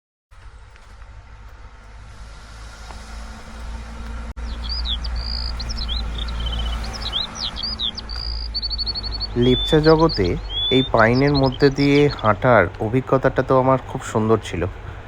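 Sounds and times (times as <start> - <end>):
low steady forest rumble: 0.3 - 15.0
songbird whistling: 4.4 - 12.3.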